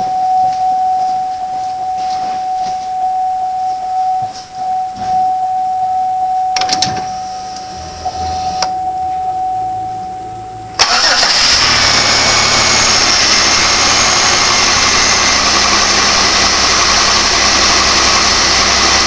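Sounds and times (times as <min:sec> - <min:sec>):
faint low hum: 0:00.0 - 0:10.8
high-pitched tone: 0:00.0 - 0:11.4.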